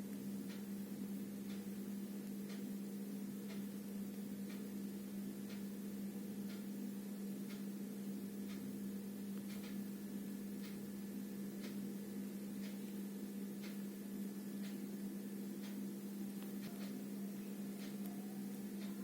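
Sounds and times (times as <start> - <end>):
cassette player hum: 0.0 - 19.0
faint tick: 0.1 - 0.7, 2.2 - 2.7, 3.5 - 4.6, 5.5 - 5.7, 6.5 - 6.7, 7.5 - 7.7, 8.5 - 8.7, 9.3 - 9.8, 10.6 - 10.8, 11.6 - 11.8, 12.6 - 13.0, 13.6 - 13.8, 14.6 - 14.8, 15.6 - 15.8, 17.8 - 18.2.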